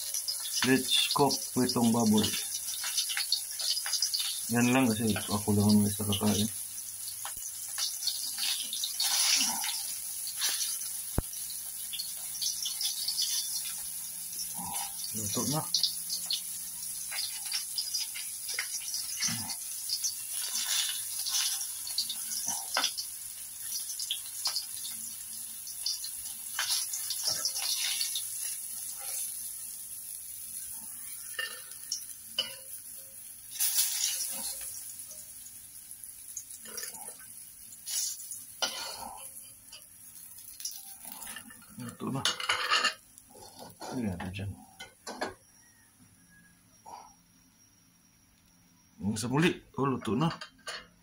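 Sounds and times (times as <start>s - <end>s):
meat sizzling in a wok: 0.0s - 43.9s, 45.2s - 46.5s.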